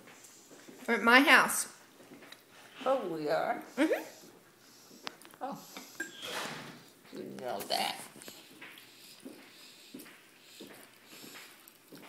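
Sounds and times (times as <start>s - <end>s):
person chewing food: 8.1s - 12.0s.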